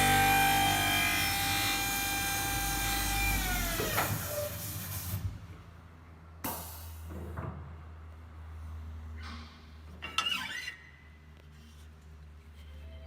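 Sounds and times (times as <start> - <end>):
squeaking scrape: 9.2 - 13.0.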